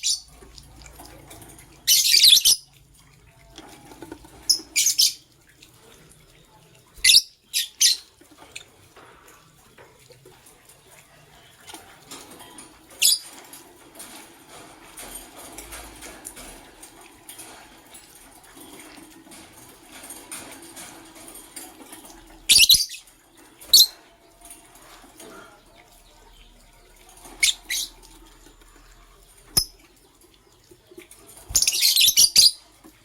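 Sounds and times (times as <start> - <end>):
lovebirds chirping: 0.0 - 0.7, 22.3 - 24.2, 31.3 - 32.8
soft rustling and scratching: 3.3 - 7.0.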